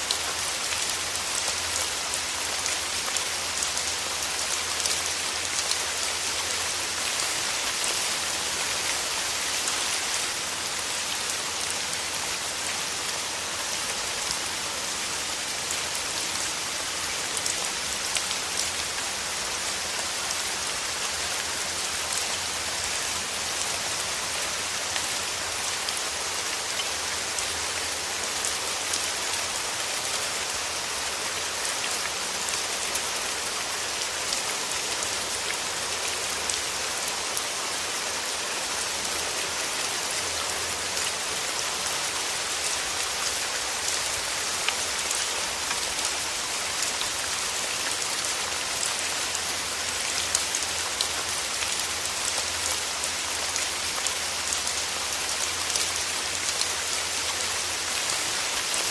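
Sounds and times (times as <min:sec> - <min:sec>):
steady rain: 0:00.0 - 0:58.9.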